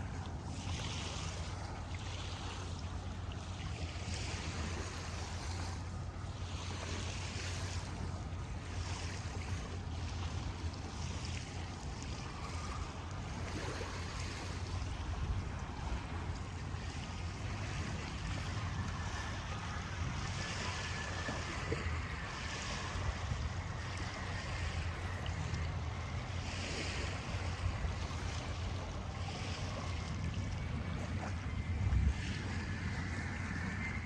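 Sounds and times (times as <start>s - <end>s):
water washing against shore: 0.0s - 34.0s
low rumble: 14.6s - 34.0s.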